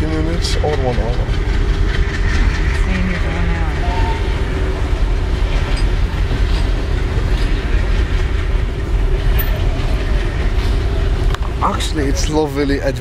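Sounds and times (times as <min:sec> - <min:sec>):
steady hum: 0:00.0 - 0:13.0
train rumble: 0:00.0 - 0:13.0.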